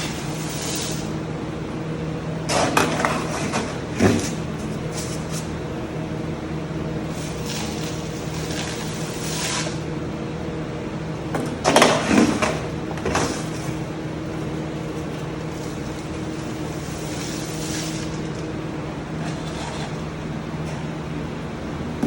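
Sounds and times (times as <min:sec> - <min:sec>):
steady machine hum: 0:00.0 - 0:22.0
powder pouring into plastic container: 0:15.5 - 0:18.4.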